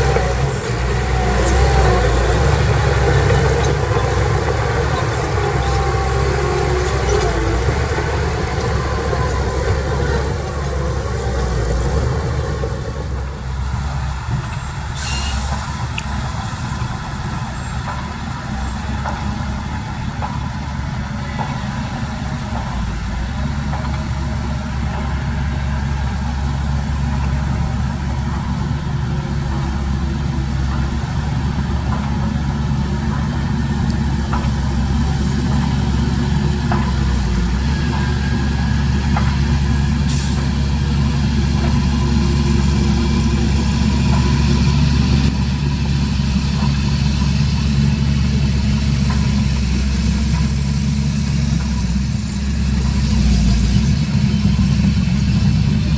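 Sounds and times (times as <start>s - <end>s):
heavy diesel engines running: 0.0s - 55.9s
air brake hisses: 14.9s - 15.9s.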